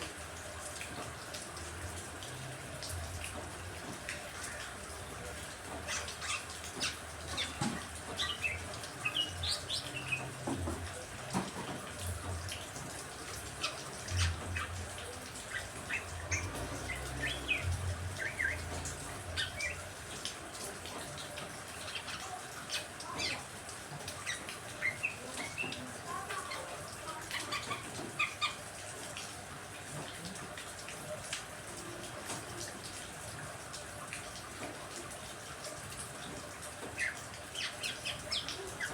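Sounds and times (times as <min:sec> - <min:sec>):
steady rain hiss: 0:00.0 - 0:38.9
caged songbirds chirping: 0:05.7 - 0:20.3, 0:21.0 - 0:28.6, 0:36.8 - 0:38.9.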